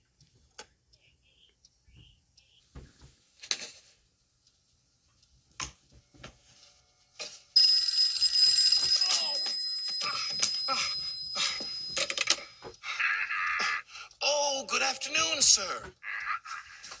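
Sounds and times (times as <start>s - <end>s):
telephone ringing: 7.2s - 12.7s.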